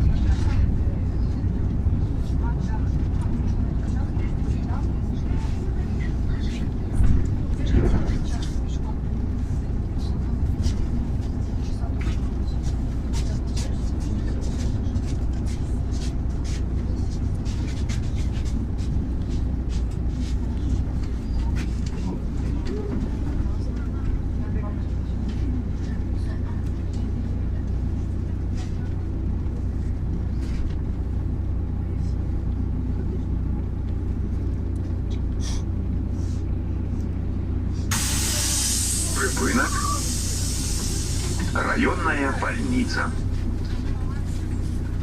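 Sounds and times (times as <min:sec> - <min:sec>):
bus engine and road rumble: 0:00.0 - 0:45.0
compressed air hiss: 0:37.9 - 0:39.2, 0:39.8 - 0:41.5.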